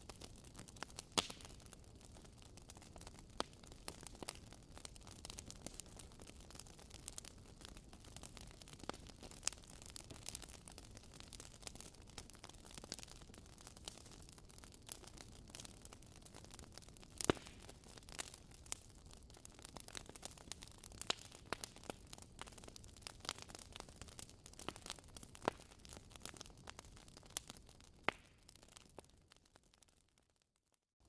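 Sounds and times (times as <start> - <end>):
wood fire crackling: 0.0 - 30.4.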